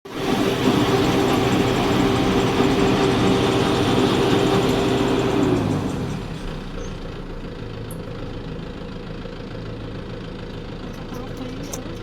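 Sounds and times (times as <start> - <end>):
engine idling: 0.1 - 12.0.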